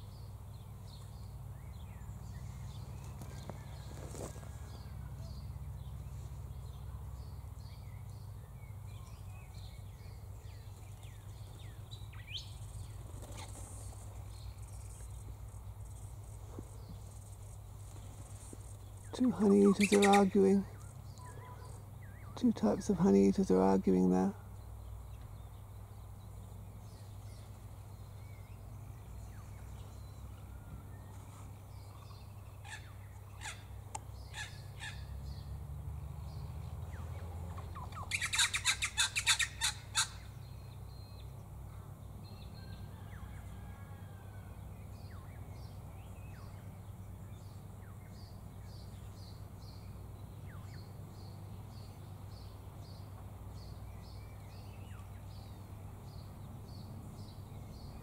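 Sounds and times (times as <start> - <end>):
birds calling: 0.0 - 35.6, 36.2 - 41.4
harsh bird chattering: 19.4 - 20.5, 37.9 - 40.1.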